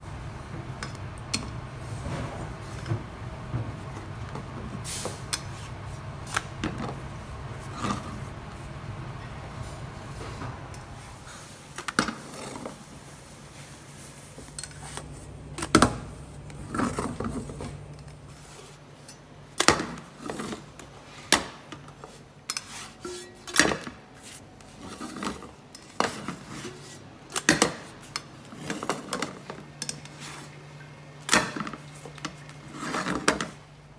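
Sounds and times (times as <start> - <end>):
steady low hum: 0.0 - 11.8
utensils clinking against a pan: 18.5 - 30.5.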